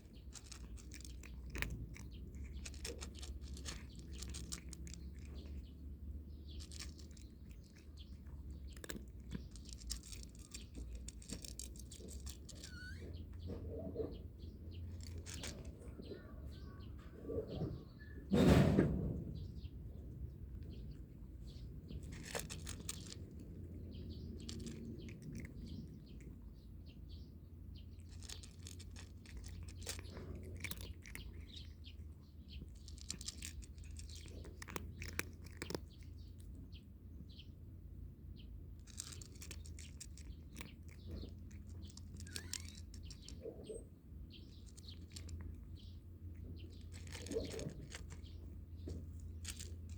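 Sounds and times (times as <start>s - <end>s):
birds chirping: 0.0s - 49.9s
loud thump: 18.3s - 19.4s.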